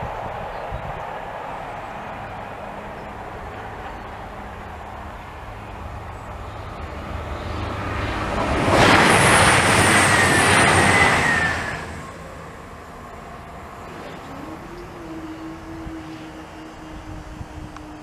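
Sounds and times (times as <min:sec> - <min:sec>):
vehicle passing by: 0:04.1 - 0:18.0.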